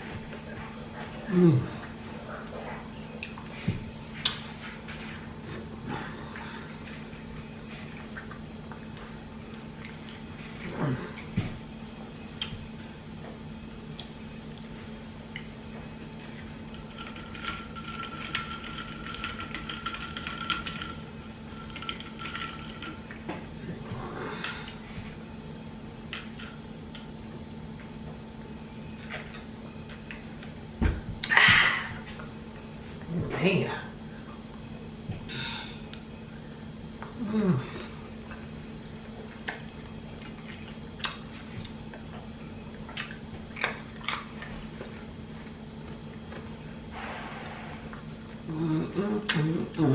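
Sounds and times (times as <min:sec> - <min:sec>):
low hum: 0:00.0 - 0:49.9
chewing crunchy taco shells: 0:13.9 - 0:23.3, 0:38.3 - 0:46.6.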